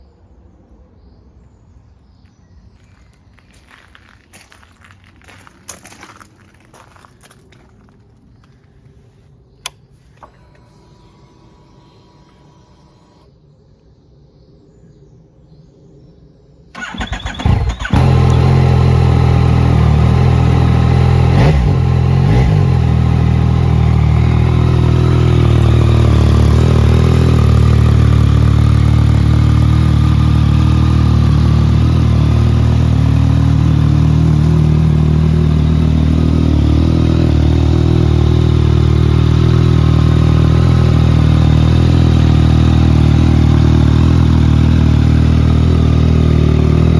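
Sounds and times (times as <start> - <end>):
motorcycle engine starting and idling: 9.6 - 13.3, 16.7 - 46.9.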